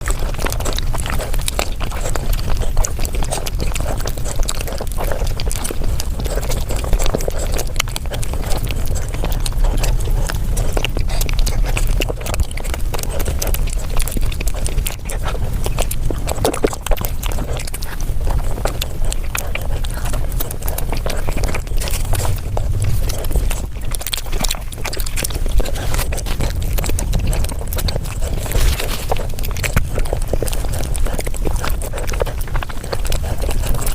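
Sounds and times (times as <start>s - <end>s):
sped-up chewing and lip-smacking: 0.0s - 33.9s.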